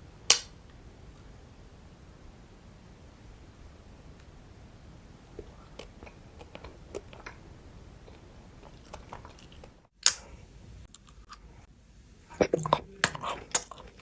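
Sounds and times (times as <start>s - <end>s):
loud candy snap: 0.3s - 0.6s, 10.0s - 10.3s.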